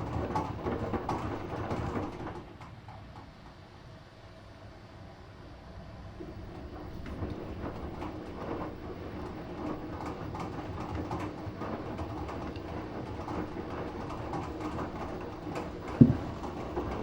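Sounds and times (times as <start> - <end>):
washing machine drum turning: 10.2 - 17.0.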